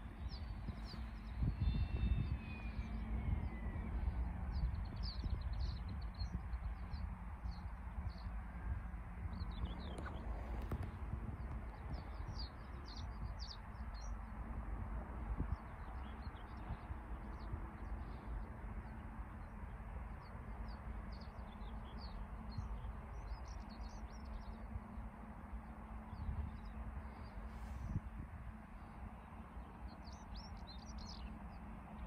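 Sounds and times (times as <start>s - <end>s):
songbirds chirping: 0.0s - 32.0s
steady low rumble: 0.0s - 32.0s.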